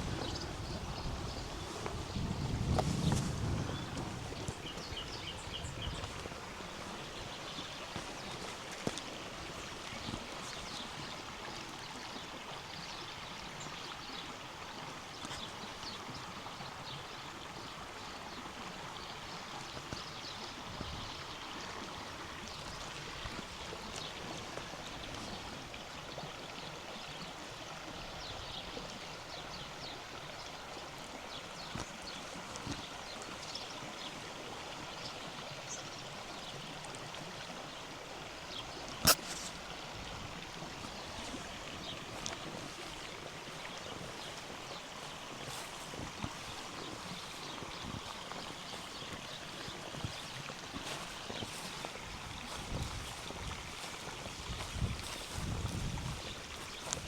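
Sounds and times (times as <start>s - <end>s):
small birds chirping: 0.0s - 12.3s, 38.5s - 39.7s, 40.4s - 57.0s
river water rushing over rocks: 0.0s - 57.0s.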